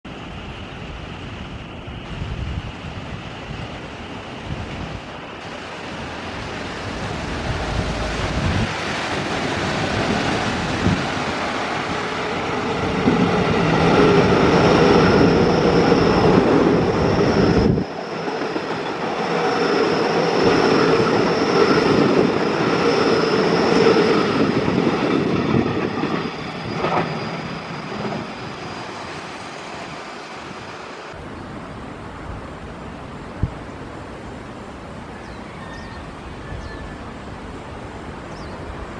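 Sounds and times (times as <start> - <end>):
train high whine: 0.1 - 31.3
train wheels rumbling and clacking: 5.6 - 30.6.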